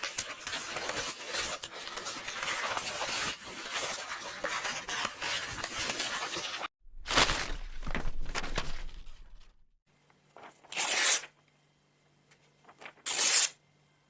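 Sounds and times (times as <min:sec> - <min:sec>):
paper rasp: 0:00.0 - 0:06.7
paper pages rustling: 0:00.0 - 0:09.6.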